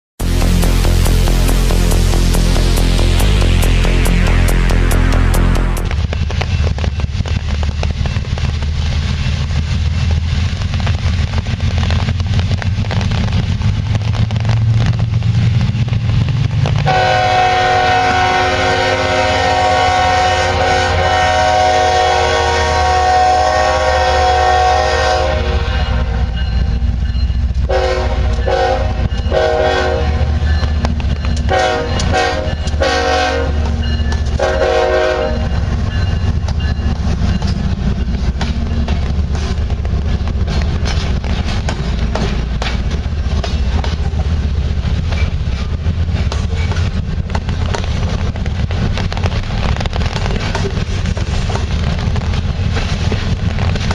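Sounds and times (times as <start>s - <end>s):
locomotive air horn blasts: 0.2s - 5.9s, 16.8s - 26.4s, 27.7s - 30.4s, 31.5s - 35.6s
diesel locomotives rumbling: 0.2s - 53.9s.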